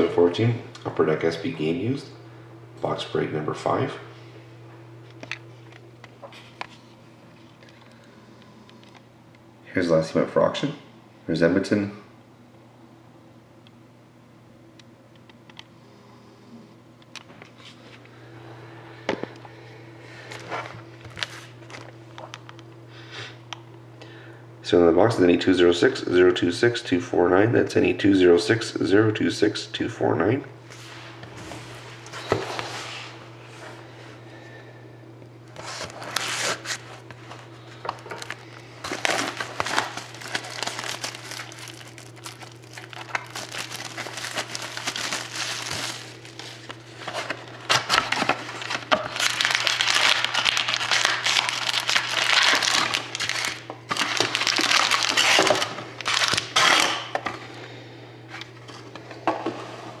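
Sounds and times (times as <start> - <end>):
steady low hum: 0.0 - 60.0
plastic wrapping crinkling and tearing: 37.9 - 57.0.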